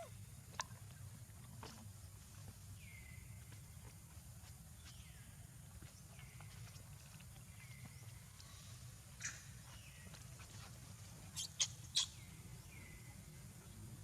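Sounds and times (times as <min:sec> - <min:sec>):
high-pitched animal chirps: 0:11.4 - 0:12.1.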